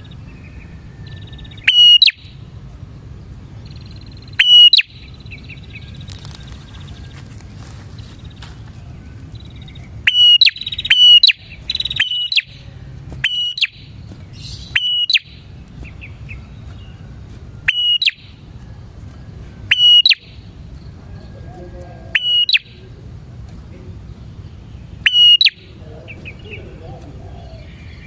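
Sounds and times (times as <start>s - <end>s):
low background hum: 0.0s - 28.0s
bird whistling sharp notes: 0.9s - 2.4s, 3.7s - 6.9s, 9.4s - 17.0s, 17.6s - 18.4s, 19.6s - 20.5s, 22.2s - 22.8s, 25.0s - 26.5s.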